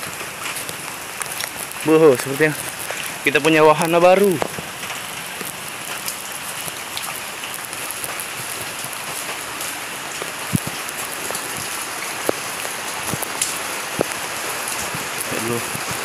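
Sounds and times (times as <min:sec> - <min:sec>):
close raindrops striking: 0:00.0 - 0:16.0
steady rain hiss: 0:00.0 - 0:16.0.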